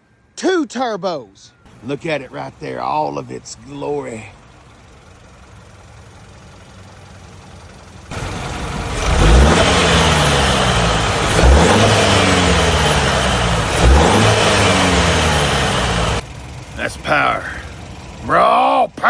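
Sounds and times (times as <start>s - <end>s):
car engine revving: 4.5s - 19.0s.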